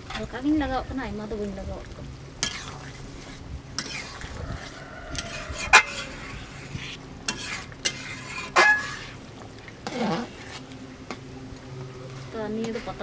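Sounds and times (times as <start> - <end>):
faint sizzle: 0.0 - 13.0
ladle stirring in a frying pan: 1.9 - 13.0
metal clanking on a pan: 2.4 - 9.2.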